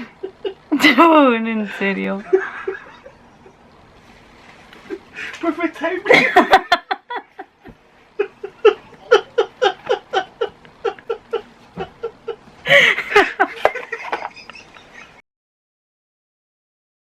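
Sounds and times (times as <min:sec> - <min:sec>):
woman laughing: 0:00.0 - 0:03.7, 0:06.0 - 0:15.2.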